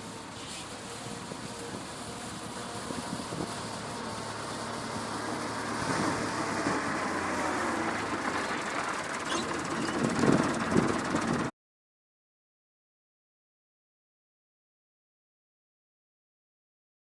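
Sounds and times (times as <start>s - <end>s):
tractor running: 0.0s - 11.5s.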